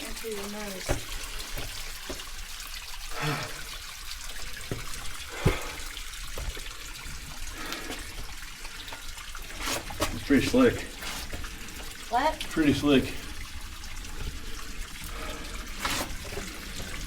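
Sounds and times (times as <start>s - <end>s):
water trickling over rock: 0.0s - 17.0s.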